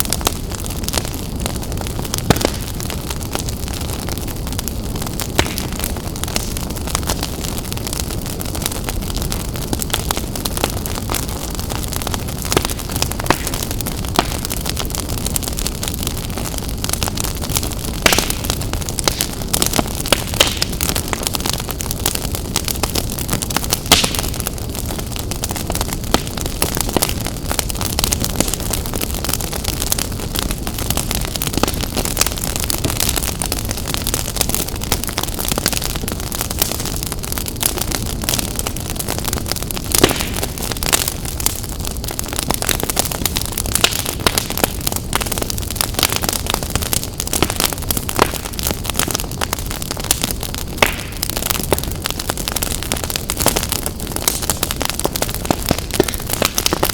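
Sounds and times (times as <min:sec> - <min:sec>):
low fire rumble: 0:00.0 - 0:56.9
wood fire crackling and popping: 0:00.0 - 0:56.9
loud wood snaps: 0:23.9 - 0:24.2, 0:50.8 - 0:51.2.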